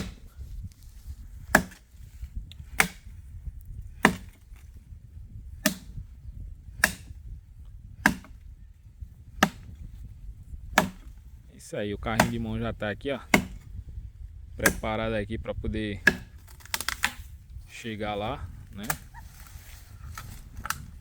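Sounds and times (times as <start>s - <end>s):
blade chopping dry wood: 0.0s - 0.3s, 1.3s - 6.1s, 6.7s - 8.6s, 9.2s - 11.3s, 12.0s - 13.8s, 14.5s - 15.0s, 16.0s - 17.4s, 18.8s - 19.2s.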